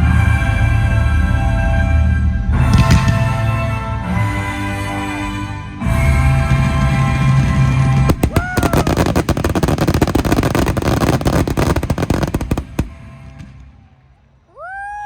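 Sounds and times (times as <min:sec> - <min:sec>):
fireworks crackling: 0:07.6 - 0:13.8
loud show music: 0:08.1 - 0:12.9
firework whistling glide: 0:08.1 - 0:13.5.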